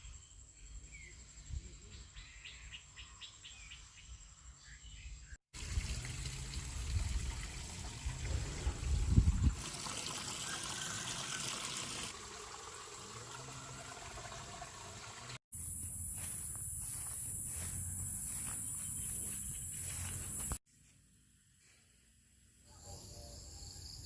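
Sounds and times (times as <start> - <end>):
water trickling and splashing: 5.5 - 15.4
wind rumbling on microphone: 5.6 - 9.6
steady high hiss: 15.6 - 20.6.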